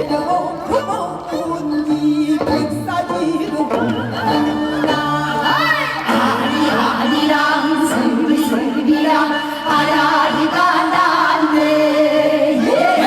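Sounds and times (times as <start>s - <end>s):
woman singing: 0.0s - 13.0s
band accompaniment: 1.5s - 9.0s.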